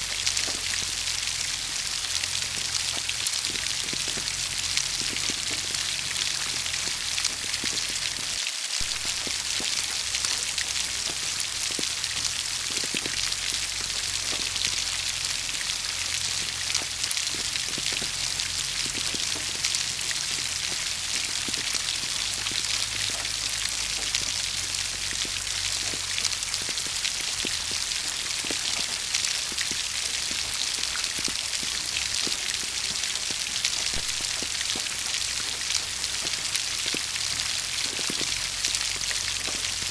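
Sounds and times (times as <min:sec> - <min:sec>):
rain hissing: 0:00.0 - 0:39.9
raindrops pattering on a surface: 0:00.0 - 0:39.9.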